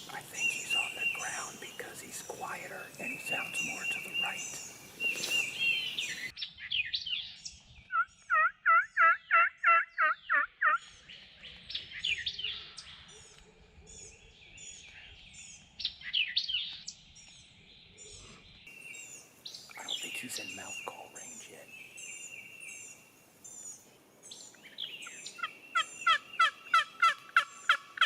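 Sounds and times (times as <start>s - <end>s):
songbird chirping: 0.0s - 28.0s
loud turkey yelps: 7.9s - 10.8s, 25.4s - 28.0s.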